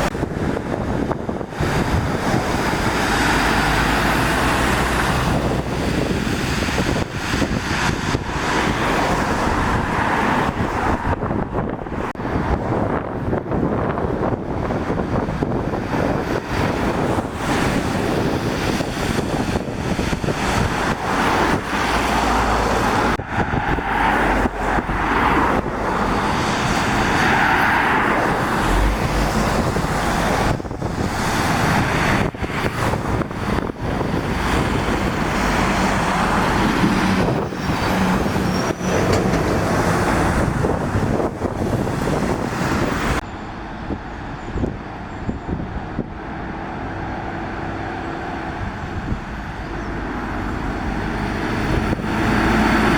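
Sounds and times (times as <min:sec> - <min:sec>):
vehicle engines running: 0:00.0 - 0:52.9
tyres hissing on wet road: 0:01.5 - 0:10.5, 0:16.3 - 0:43.2, 0:49.7 - 0:52.9.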